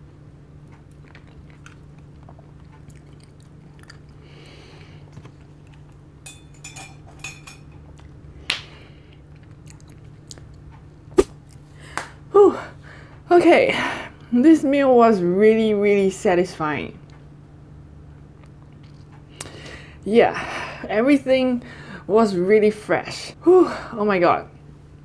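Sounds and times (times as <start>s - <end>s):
steady low hum: 0.0s - 25.0s
chewing with wet mouth clicks: 0.6s - 6.0s, 9.1s - 10.8s, 18.4s - 19.6s.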